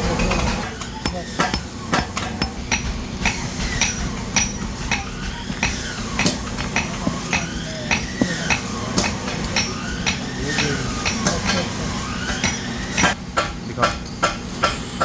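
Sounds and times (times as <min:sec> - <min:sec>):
hammer tapping on metal: 0:00.1 - 0:14.9.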